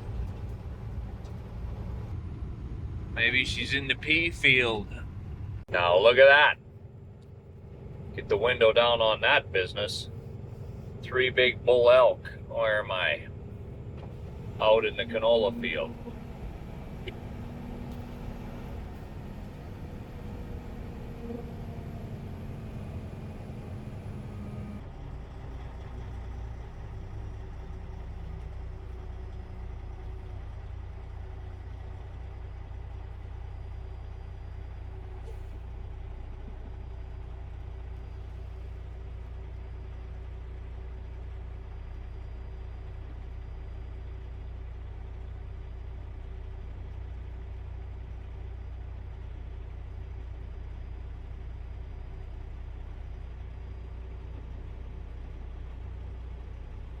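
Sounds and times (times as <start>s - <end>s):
diesel truck engine droning: 0.0s - 57.0s.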